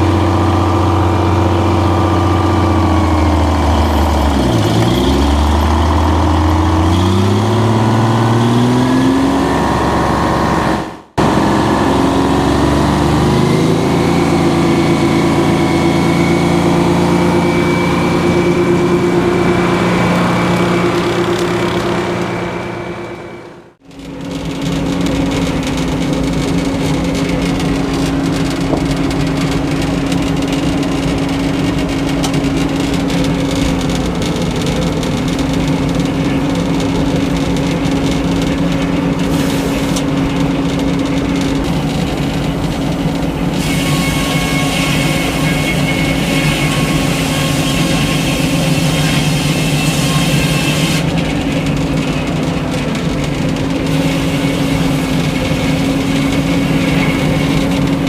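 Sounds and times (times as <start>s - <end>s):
circular sawmill running: 0.0s - 58.0s
saw blade ringing whine: 9.4s - 23.7s, 43.3s - 51.0s.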